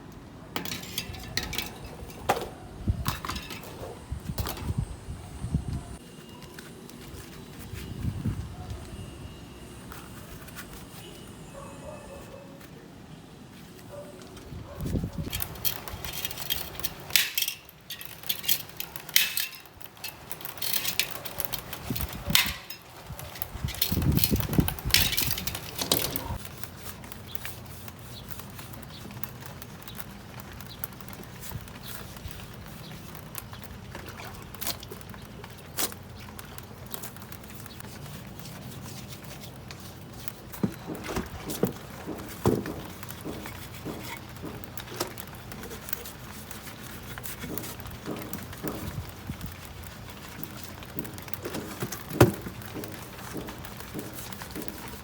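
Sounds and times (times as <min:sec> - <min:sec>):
tools and parts clicking and knocking: 0:00.0 - 0:04.8, 0:15.2 - 0:27.6, 0:28.2 - 0:55.0.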